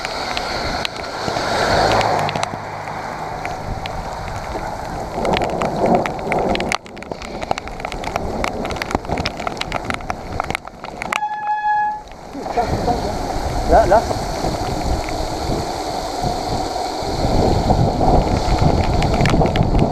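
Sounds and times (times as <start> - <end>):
raindrops clicking near microphone: 0.0 - 19.9
steady rain: 0.0 - 19.9.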